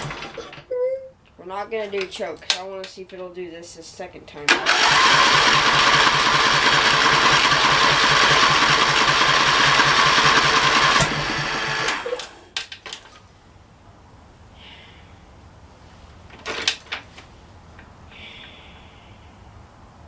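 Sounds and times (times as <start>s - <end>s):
engine cranking on starter: 0.0s - 0.6s, 4.5s - 12.4s.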